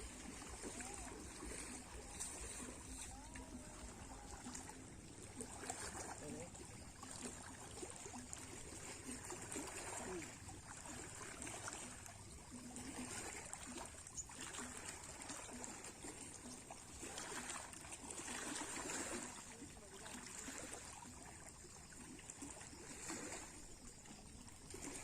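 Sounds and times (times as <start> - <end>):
waves lapping on shore: 0.0 - 25.0.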